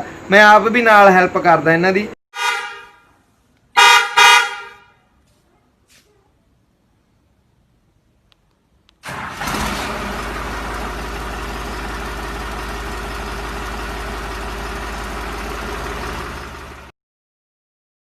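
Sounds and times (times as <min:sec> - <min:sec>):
tractor diesel engine idling: 0:09.0 - 0:16.9.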